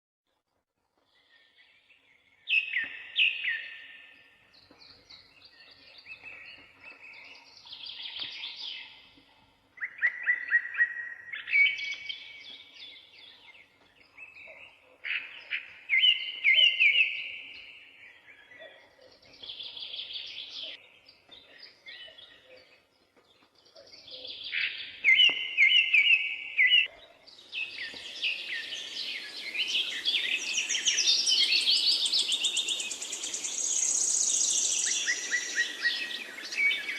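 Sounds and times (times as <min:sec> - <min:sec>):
high chirping chorus: 0:24.4 - 0:36.9
songbird trilling: 0:27.6 - 0:36.9.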